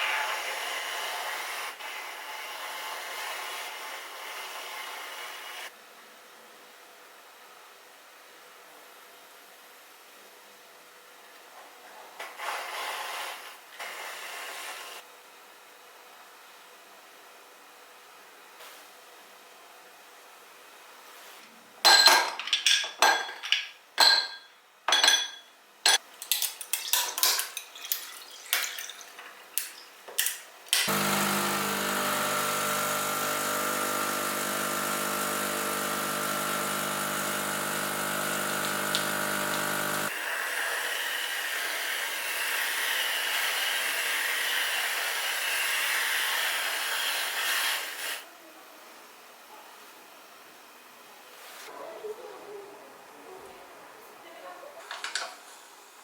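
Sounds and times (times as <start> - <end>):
glassware and dishes clinking: 21.9 - 29.9
electric appliance motor running: 30.7 - 48.2.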